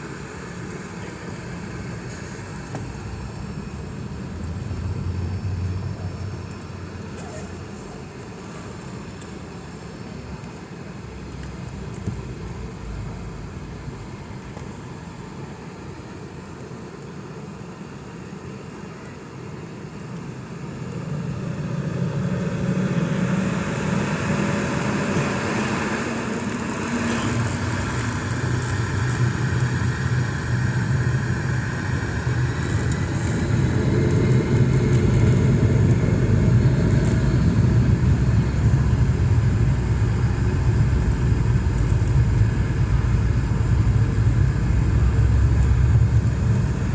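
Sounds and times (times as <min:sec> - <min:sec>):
jet engines spooling up: 0:20.4 - 0:46.9.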